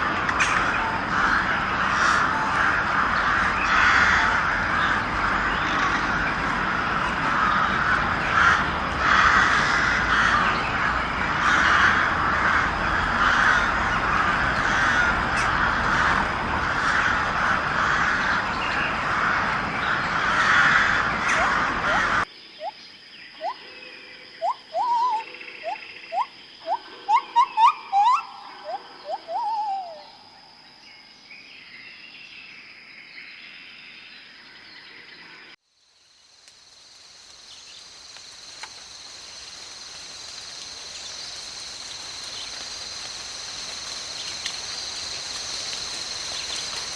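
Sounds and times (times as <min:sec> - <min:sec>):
crows cawing: 0:00.0 - 0:22.3
short rising chirp-like calls: 0:24.4 - 0:30.3.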